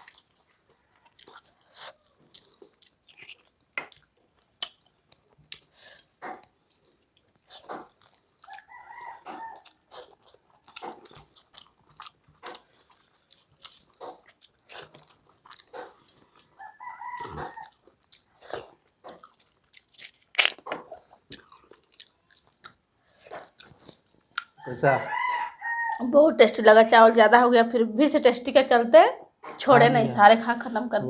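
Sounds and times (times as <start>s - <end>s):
wet chewing and lip smacks: 0.0s - 24.7s.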